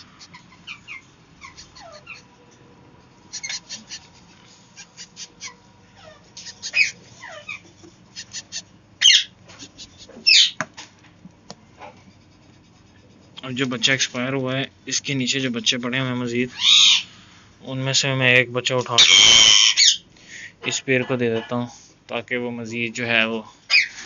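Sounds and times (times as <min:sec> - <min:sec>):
cage birds chirping: 0:00.0 - 0:10.6, 0:14.9 - 0:17.3, 0:18.7 - 0:21.3, 0:23.7 - 0:24.0.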